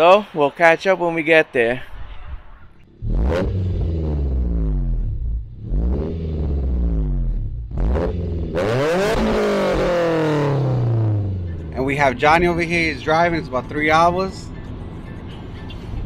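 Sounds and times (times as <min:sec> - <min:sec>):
steady low drone: 0:02.2 - 0:08.6, 0:09.6 - 0:16.0
car engine accelerating: 0:02.8 - 0:16.0.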